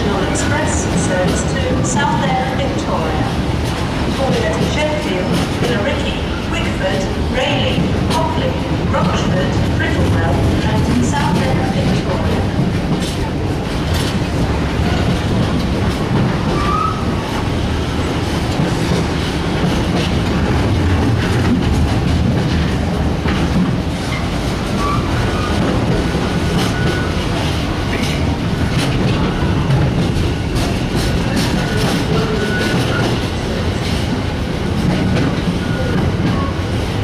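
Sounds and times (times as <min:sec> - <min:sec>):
clickety-clack over rail joints: 0:00.0 - 0:37.0
wheel squeals: 0:16.5 - 0:17.1.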